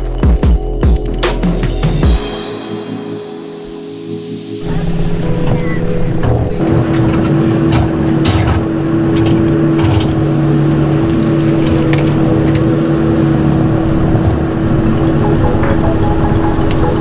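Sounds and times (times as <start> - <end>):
excavator diesel engine running: 4.5 - 17.0.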